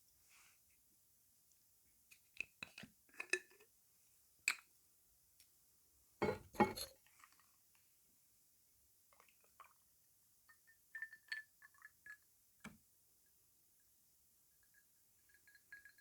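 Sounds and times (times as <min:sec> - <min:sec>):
cutlery and dishes clinking: 0:06.2 - 0:06.9.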